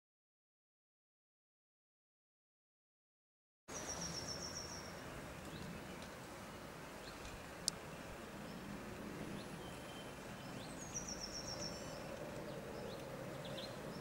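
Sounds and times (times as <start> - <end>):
low background noise: 3.7 - 14.0
small birds chirping: 3.7 - 14.0.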